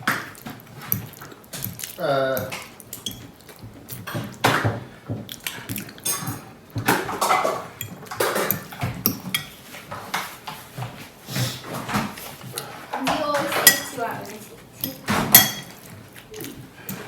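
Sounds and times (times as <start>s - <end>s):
cutlery clinking on plates: 2.4s - 10.6s, 11.7s - 16.0s, 16.8s - 17.0s.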